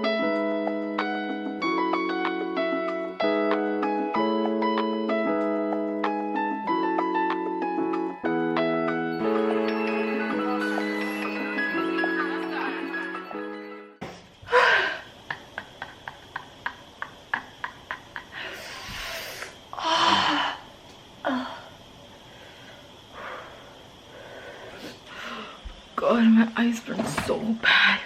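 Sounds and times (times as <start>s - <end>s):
background music: 0.0s - 14.0s
person gasping and sighing: 19.8s - 20.6s.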